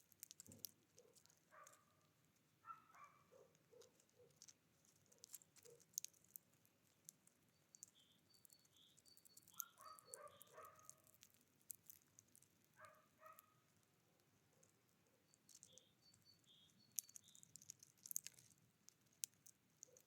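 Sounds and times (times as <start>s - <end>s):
small clicks: 0.0s - 1.8s, 3.8s - 13.5s, 15.3s - 20.0s
small birds calling: 7.6s - 11.2s, 15.2s - 18.2s.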